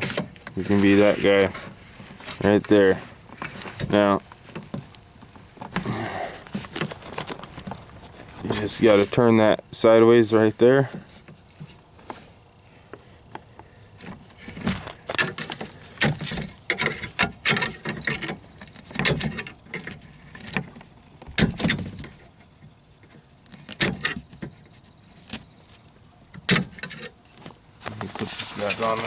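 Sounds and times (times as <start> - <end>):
metallic clicks and rattles of door handle: 16.0 - 20.6, 21.3 - 22.2.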